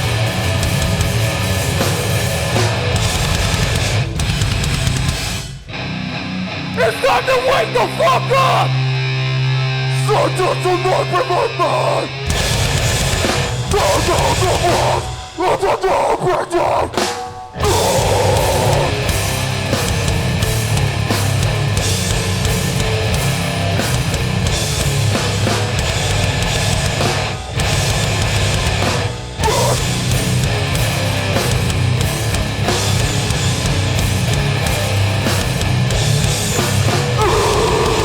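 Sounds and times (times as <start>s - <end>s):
pounding drums: 0.0s - 5.6s, 12.3s - 15.8s, 16.7s - 38.0s
bass guitar: 0.0s - 38.0s
distorted guitars: 0.0s - 38.0s.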